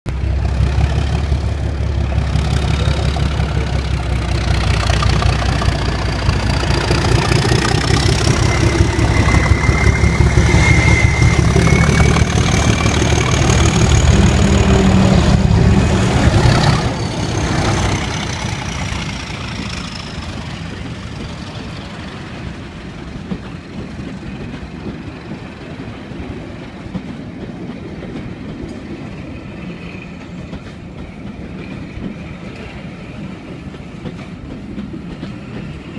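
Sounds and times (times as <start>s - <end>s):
diesel locomotive engines: 0.1s - 35.9s
turbocharger whistle: 7.8s - 13.5s.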